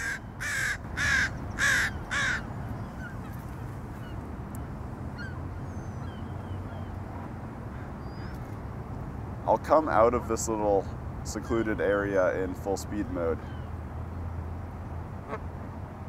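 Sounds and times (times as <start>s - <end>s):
harsh bird calls: 0.0s - 4.2s, 5.2s - 7.0s, 7.7s - 8.6s, 13.0s - 13.8s
small birds chirping: 0.0s - 7.0s, 7.7s - 8.8s.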